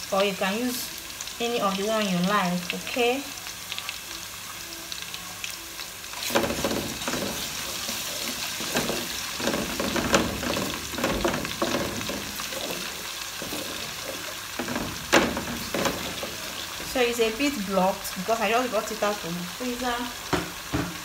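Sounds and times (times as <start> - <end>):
onions sizzling in oil: 0.0 - 21.0
wooden spoon scraping a pot: 6.2 - 17.0.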